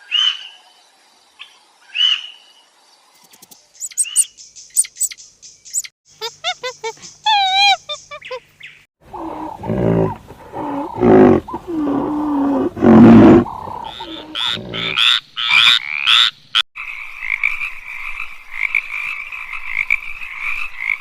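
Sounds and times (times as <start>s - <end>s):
high chirps: 3.1s - 8.8s
low drawn-out animal calls: 9.0s - 15.1s
frogs croaking: 13.2s - 21.0s.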